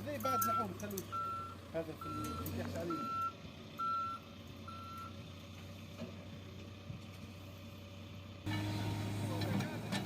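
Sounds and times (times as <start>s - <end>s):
low engine rumble: 0.0s - 10.0s
reversing alarm beep: 0.4s - 5.2s.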